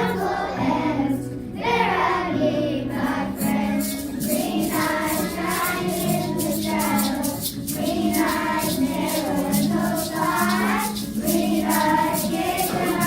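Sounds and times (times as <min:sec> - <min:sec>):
children singing in unison: 0:00.0 - 0:13.0
accompaniment with steady beat: 0:03.4 - 0:13.0.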